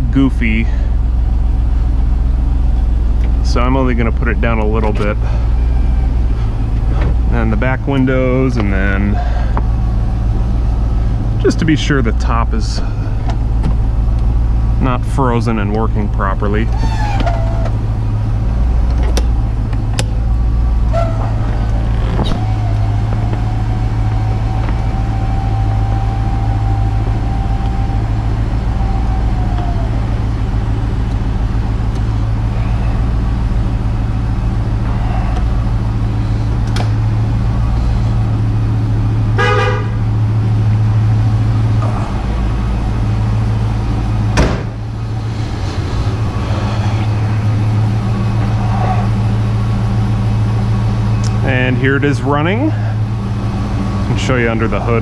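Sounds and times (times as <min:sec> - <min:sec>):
car engine idling: 0:00.0 - 0:55.0
sharp clicks and knocks: 0:36.6 - 0:37.0.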